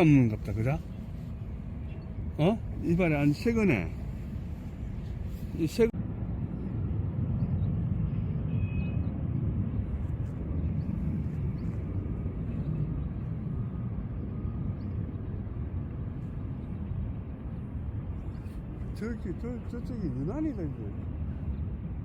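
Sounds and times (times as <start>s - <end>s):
low outdoor rumble: 0.0s - 22.0s
faint high chirp: 8.3s - 9.1s.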